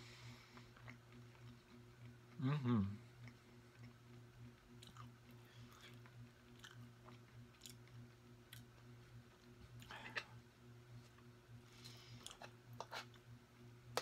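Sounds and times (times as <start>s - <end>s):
low steady hum: 0.0s - 14.0s
close-mouthed chewing: 0.5s - 10.0s.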